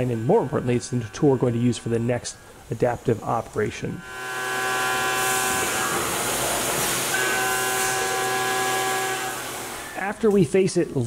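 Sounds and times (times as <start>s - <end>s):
milling machine cutting tone: 0.0s - 10.4s
coolant spray hiss: 5.2s - 7.2s.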